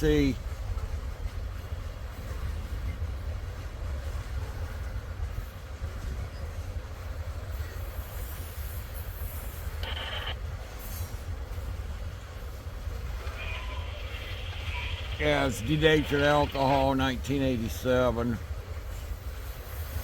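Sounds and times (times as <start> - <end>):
freight train rumbling past: 0.0 - 20.0
wheel screech: 13.2 - 16.4.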